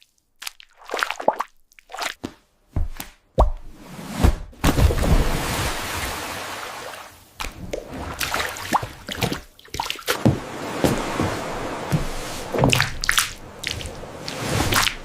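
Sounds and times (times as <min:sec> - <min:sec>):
wet squishy food squelches: 0:00.0 - 0:02.2.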